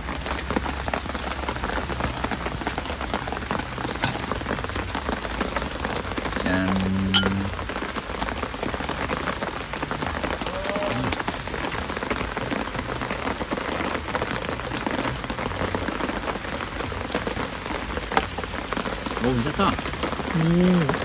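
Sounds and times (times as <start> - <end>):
heavy rain pattering: 0.0 - 21.0.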